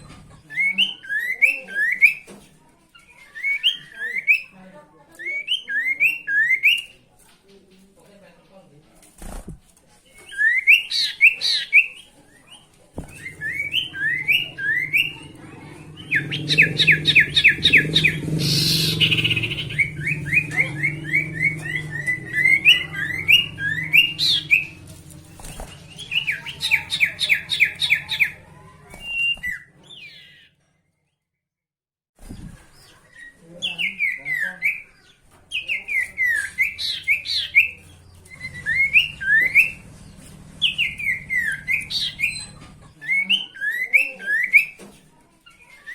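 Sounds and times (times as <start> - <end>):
bird singing rising chirps: 13.1 - 24.9.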